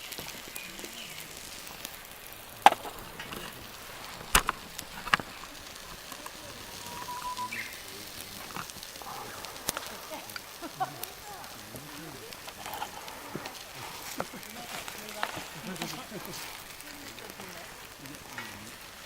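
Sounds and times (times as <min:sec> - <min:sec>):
loud sharp cracks: 0:00.0 - 0:19.0
wood fire crackling: 0:00.0 - 0:19.0.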